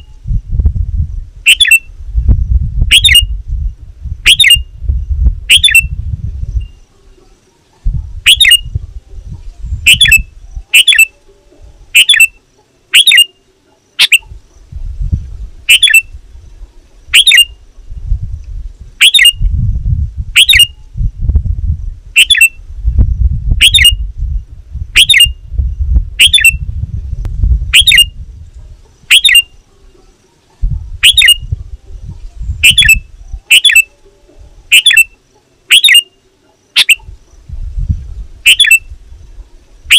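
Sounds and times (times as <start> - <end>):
bulbul short sharp calls: 9.9 - 11.2, 11.9 - 14.4, 17.1 - 17.6, 29.1 - 29.6, 31.0 - 31.5, 32.6 - 37.1
low rumble: 17.7 - 28.8.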